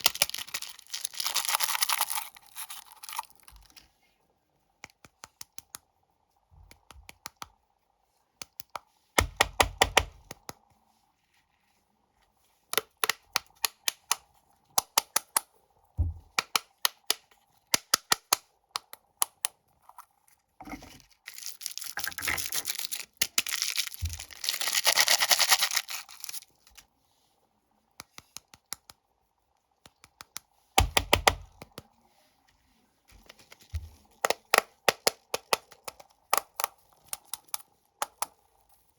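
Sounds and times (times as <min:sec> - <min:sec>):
snack wrappers crinkling: 0:00.0 - 0:03.8, 0:21.0 - 0:26.8
wrapper tearing and rustling: 0:00.0 - 0:03.8, 0:21.0 - 0:26.8.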